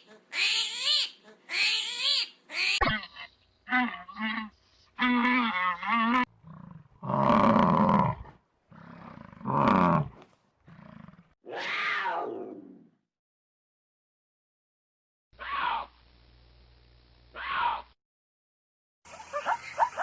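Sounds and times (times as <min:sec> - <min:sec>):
big cat roaring: 0:05.2 - 0:13.0.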